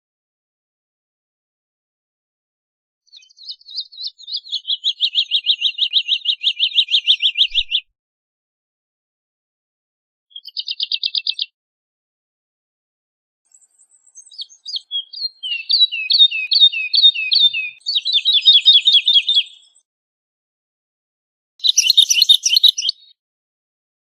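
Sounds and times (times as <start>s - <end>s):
woodlark singing: 3.2s - 7.8s, 10.3s - 11.5s, 13.9s - 19.8s, 21.6s - 23.2s.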